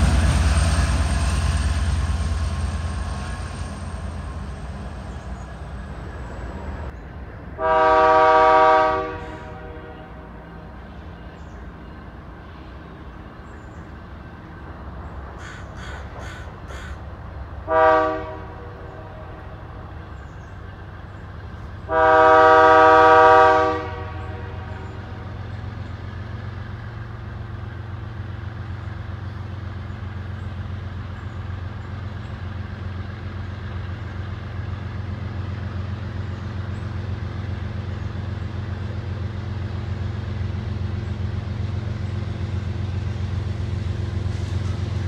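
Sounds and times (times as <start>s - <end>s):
train rumbling: 0.0s - 45.0s
locomotive air horn blast: 7.6s - 10.5s, 17.6s - 19.9s, 21.9s - 25.4s.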